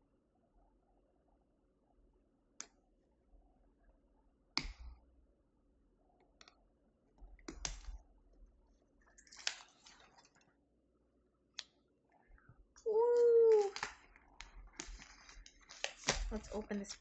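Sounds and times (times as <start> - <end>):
cardboard rustle: 14.8 - 17.0.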